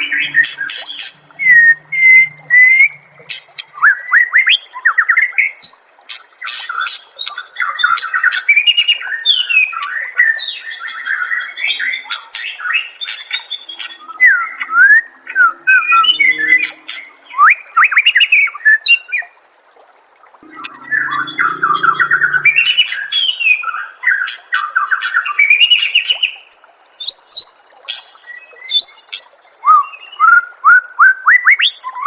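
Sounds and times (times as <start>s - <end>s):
songbird singing whistled notes: 11.4s - 19.2s, 29.6s - 32.0s
bird clicking calls: 12.1s - 14.1s.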